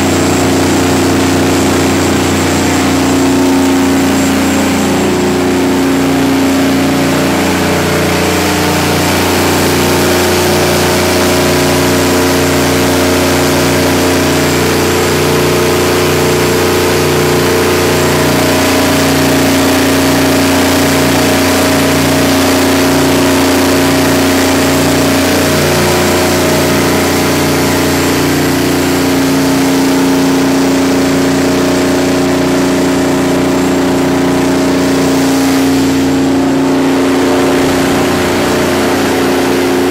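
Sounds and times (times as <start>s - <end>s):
diesel generator engine running: 0.0s - 39.9s.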